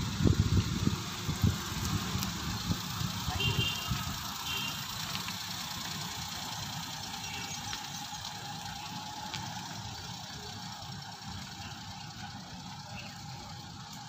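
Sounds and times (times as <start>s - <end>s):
small car engine running: 0.0s - 14.0s.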